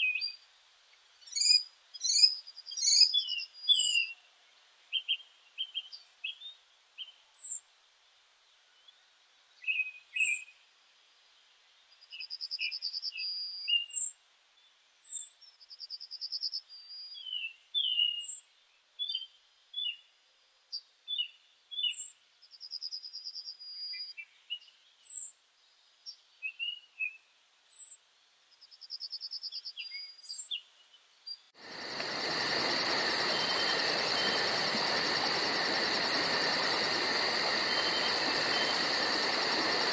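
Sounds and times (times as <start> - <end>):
birds chirping and trilling: 1.2 - 4.2, 29.5 - 39.9
pulsing insect chorus: 31.6 - 39.9.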